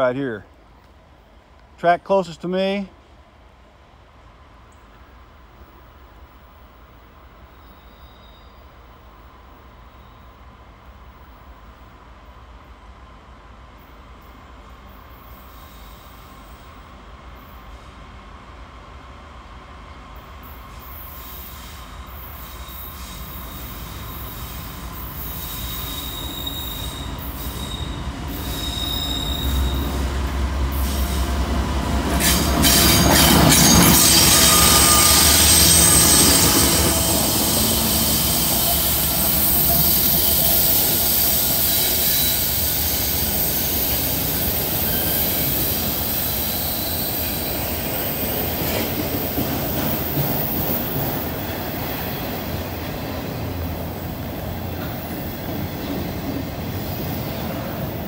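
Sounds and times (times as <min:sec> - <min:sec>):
diesel locomotives passing: 0:00.0 - 0:58.0
steel wheels squealing: 0:20.9 - 0:30.1, 0:32.2 - 0:48.5.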